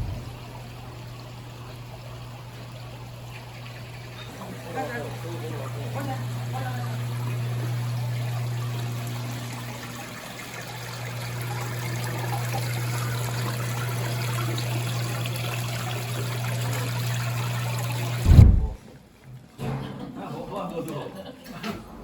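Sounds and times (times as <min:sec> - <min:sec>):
loud thump: 0:00.0 - 0:00.4, 0:18.2 - 0:18.8
low steady hum: 0:00.0 - 0:04.2, 0:18.2 - 0:18.8
rushing trickling water: 0:00.0 - 0:18.7.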